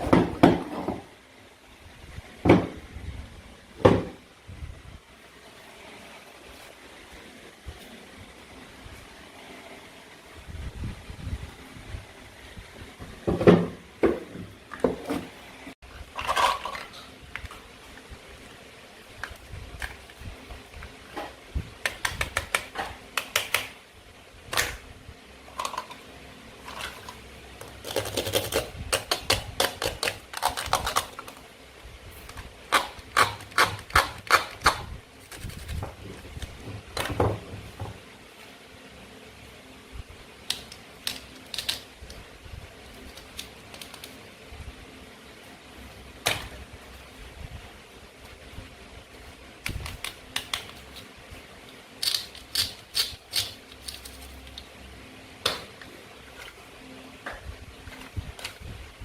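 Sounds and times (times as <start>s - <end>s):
plastic toy clicks and clatters: 40.5s - 41.9s, 52.0s - 54.4s.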